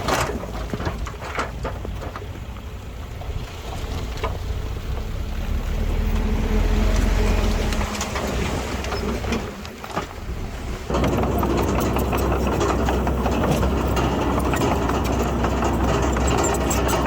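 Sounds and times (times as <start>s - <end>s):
rattling and clanking: 0.0s - 2.6s, 6.1s - 17.0s
diesel machine engine running: 4.4s - 17.0s.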